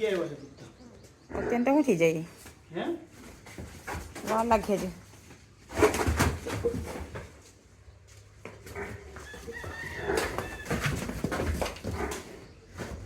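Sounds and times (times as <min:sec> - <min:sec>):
rooster crowing: 0:09.2 - 0:11.0.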